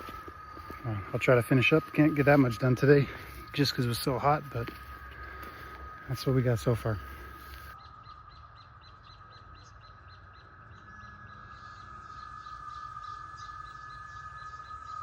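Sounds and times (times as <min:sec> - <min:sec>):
fast regular chirping: 0:00.0 - 0:07.8
high-pitched wildlife drone: 0:00.0 - 0:15.0.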